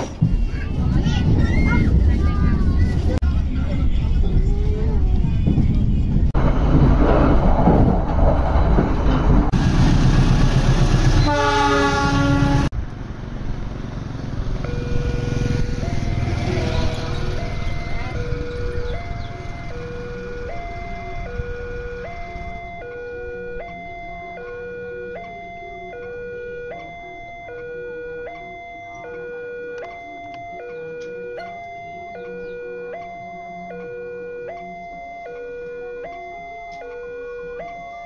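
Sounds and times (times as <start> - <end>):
train wheels rumbling on rails: 0.0 - 22.6
train horn blast: 11.1 - 12.8
level crossing two-tone alarm: 14.6 - 38.0.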